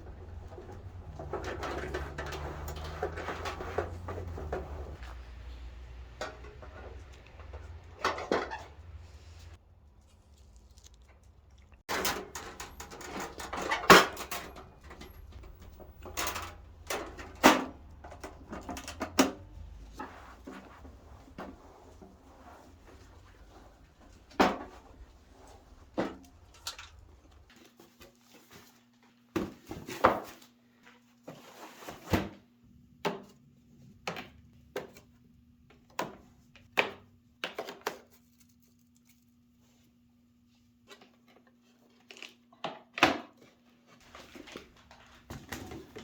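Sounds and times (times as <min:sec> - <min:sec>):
objects knocking and clattering: 0:00.0 - 0:09.1, 0:11.9 - 0:27.5
rustling: 0:00.1 - 0:11.8.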